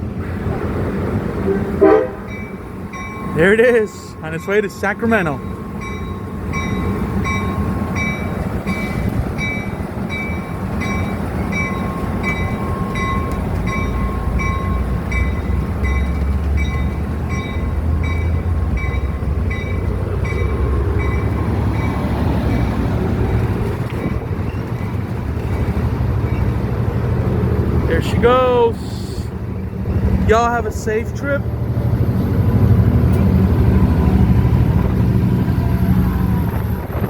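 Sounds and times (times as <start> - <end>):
low diesel locomotive rumble: 0.0 - 37.0
bell ringing: 2.3 - 22.1.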